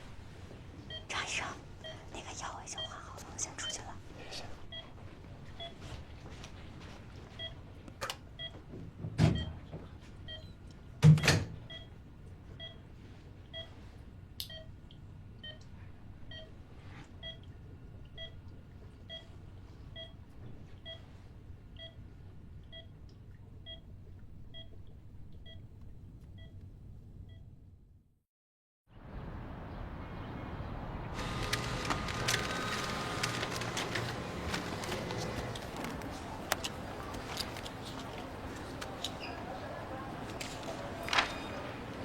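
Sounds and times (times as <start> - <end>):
patient monitor beeping: 0.9 - 1.1, 4.6 - 5.9, 11.2 - 12.0, 13.5 - 13.8, 14.5 - 14.8, 16.3 - 16.6, 18.1 - 18.4, 19.1 - 19.3, 19.9 - 20.2, 20.8 - 21.1, 21.8 - 22.0, 31.2 - 38.4.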